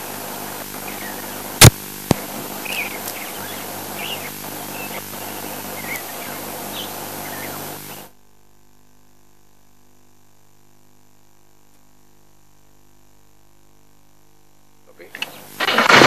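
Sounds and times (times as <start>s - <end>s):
steady outdoor hiss: 0.0s - 11.0s, 12.0s - 16.0s
wild birds chirping: 0.3s - 1.6s, 2.2s - 8.1s.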